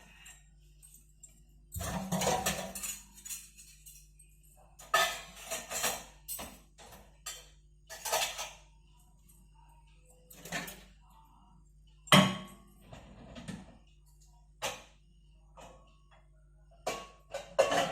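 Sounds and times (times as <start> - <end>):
dishes and cutlery clattering: 1.7 - 4.2, 4.8 - 8.7, 10.4 - 10.9, 16.8 - 17.9.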